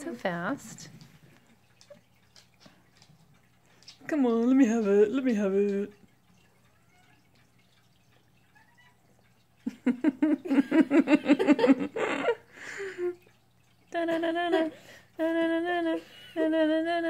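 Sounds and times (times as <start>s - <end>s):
woman laughing: 9.7s - 13.2s
woman humming: 13.9s - 17.0s.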